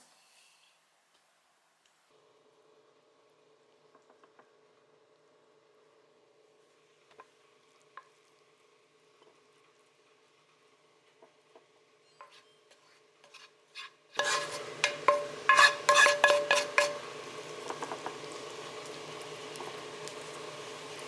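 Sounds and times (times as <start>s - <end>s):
food sizzling in a pan: 12.2s - 21.0s
utensil clattering against pan: 14.2s - 17.1s.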